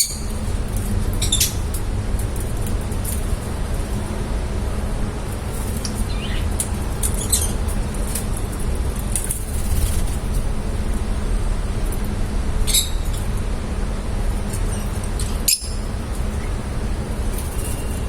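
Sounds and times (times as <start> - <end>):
steady low rumble: 0.2 - 18.0
lovebirds chirping: 6.1 - 6.5.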